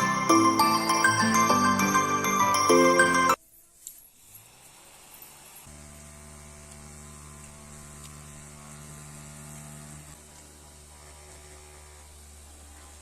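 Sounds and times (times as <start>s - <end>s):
small fan motor humming: 4.3s - 13.0s.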